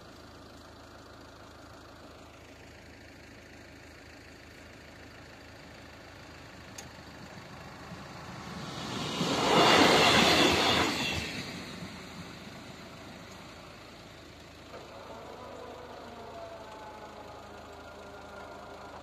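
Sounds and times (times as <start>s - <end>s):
passenger train passing: 6.4s - 19.0s.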